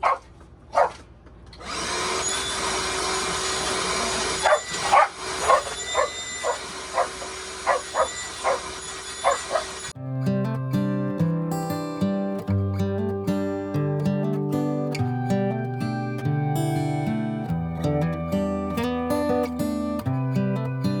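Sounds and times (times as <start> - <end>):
dog barking: 0.0 - 1.0, 4.4 - 9.8
vacuum cleaner running: 1.6 - 10.0.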